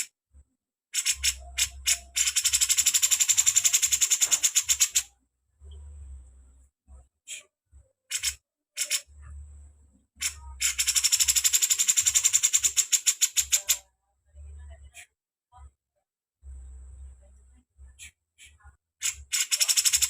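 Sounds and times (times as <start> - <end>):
songbird chattering: 1.0 - 5.1, 10.2 - 13.8
songbird rattling trill: 1.0 - 5.1, 10.2 - 13.8, 19.0 - 20.0.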